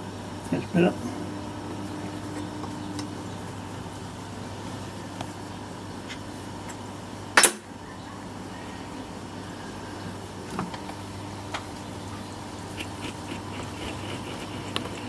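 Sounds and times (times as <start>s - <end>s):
steady low machine hum: 0.0s - 7.8s.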